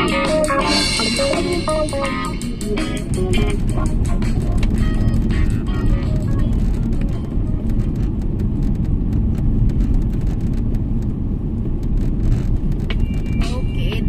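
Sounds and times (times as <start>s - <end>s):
guitar music: 0.0s - 7.9s
car road and engine noise: 0.0s - 14.0s.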